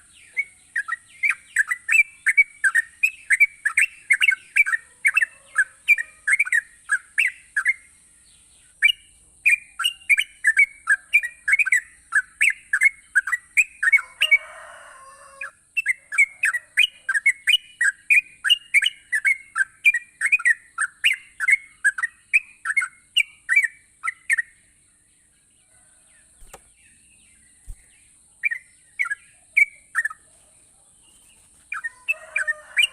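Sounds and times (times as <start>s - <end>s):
bird chirping: 0.0s - 32.9s.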